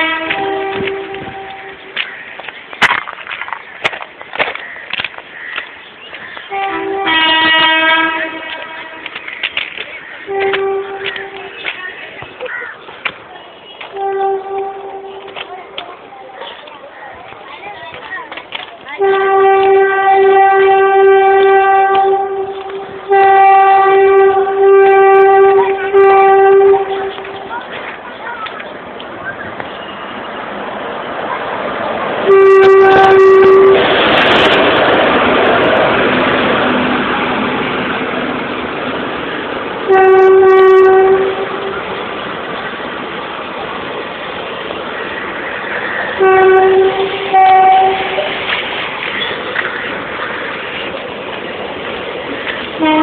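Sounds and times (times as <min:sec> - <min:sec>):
train horn blasts: 0:00.0 - 0:02.0, 0:06.5 - 0:09.2, 0:10.2 - 0:11.8, 0:13.8 - 0:15.5, 0:19.0 - 0:27.5, 0:32.2 - 0:34.6, 0:39.8 - 0:41.8, 0:46.1 - 0:48.6, 0:52.8 - 0:53.0
train running past: 0:00.0 - 0:53.0.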